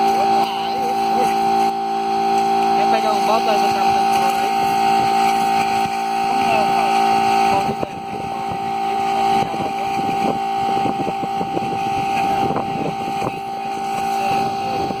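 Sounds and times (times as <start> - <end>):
air compressor humming: 0.0 - 15.0.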